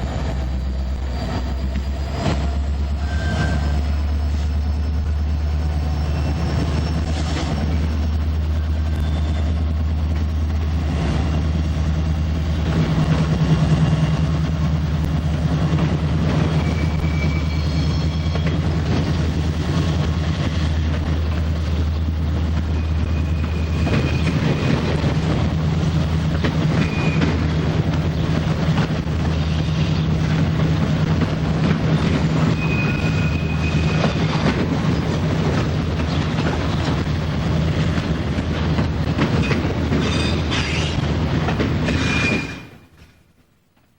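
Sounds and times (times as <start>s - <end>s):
freight train wheels rumbling: 0.0s - 43.9s
high-pitched wheel squeals: 2.2s - 4.2s, 5.8s - 9.6s, 16.4s - 18.7s, 22.7s - 25.0s, 26.7s - 27.6s, 32.2s - 34.5s, 40.0s - 41.0s, 41.9s - 43.1s.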